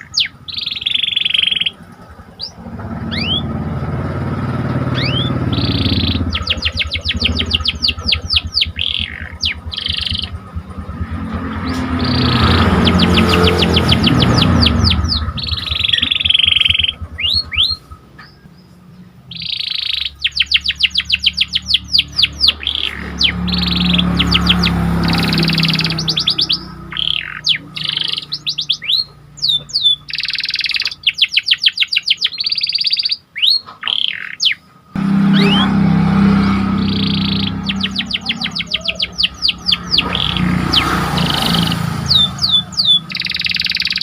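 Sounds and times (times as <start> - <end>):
canary singing: 0.0 - 44.0
low hum: 1.7 - 19.0, 35.0 - 43.6.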